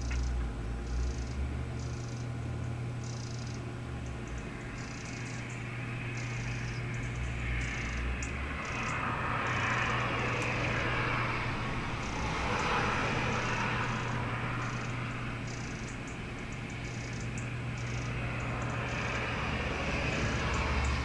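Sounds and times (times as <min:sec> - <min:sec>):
bird churring alarm call: 0:00.0 - 0:02.3, 0:03.0 - 0:10.9, 0:12.9 - 0:19.2
background rumble and hiss: 0:00.0 - 0:21.0.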